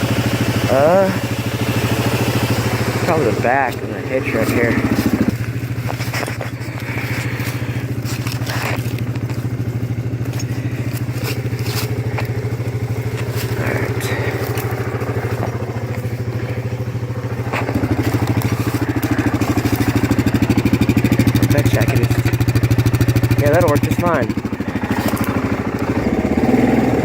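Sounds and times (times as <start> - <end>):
atv engine idling: 0.0 - 27.0
clicks and scrapes: 4.9 - 9.4.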